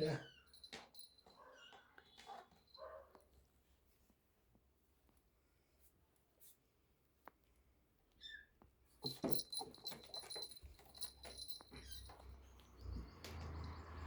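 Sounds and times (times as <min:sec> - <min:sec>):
small clicks and scuffling knocks: 0:08.6 - 0:13.7.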